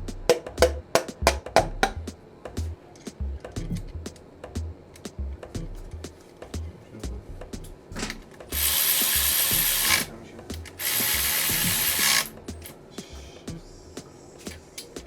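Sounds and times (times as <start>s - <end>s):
ratchet wrench clicking: 8.5s - 12.8s.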